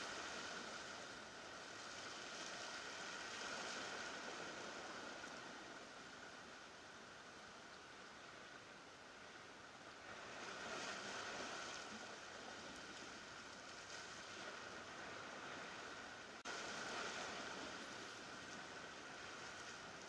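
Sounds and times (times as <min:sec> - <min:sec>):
surf washing against rocks: 0:00.0 - 0:07.2, 0:09.9 - 0:20.0.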